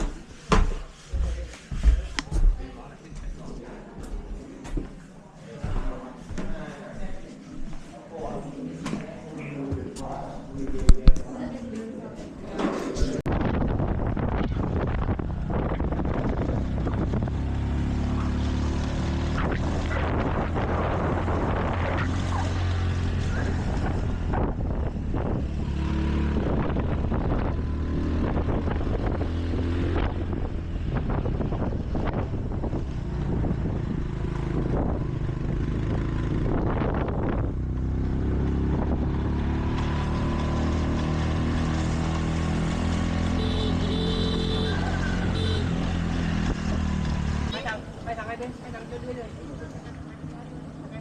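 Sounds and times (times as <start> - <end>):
wind buffeting microphone: 13.2 - 17.8, 19.6 - 39.3.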